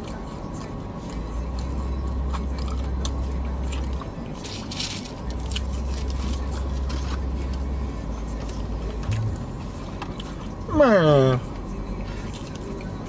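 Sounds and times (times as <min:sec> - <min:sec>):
chewing and mouth smacking: 0:00.0 - 0:07.7, 0:08.3 - 0:10.6
deep steady hum: 0:07.3 - 0:11.6.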